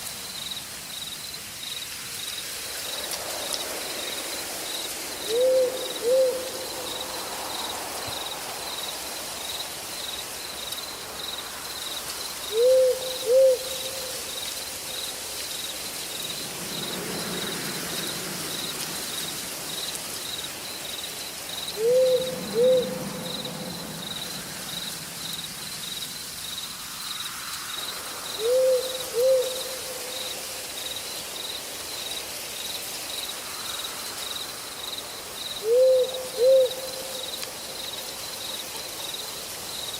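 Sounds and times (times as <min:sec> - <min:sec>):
insects trilling: 0:00.0 - 0:39.9
night forest hiss: 0:00.0 - 0:39.9
owl hooting: 0:05.3 - 0:06.6, 0:12.5 - 0:14.2, 0:21.8 - 0:23.4, 0:28.4 - 0:30.2, 0:35.6 - 0:37.3.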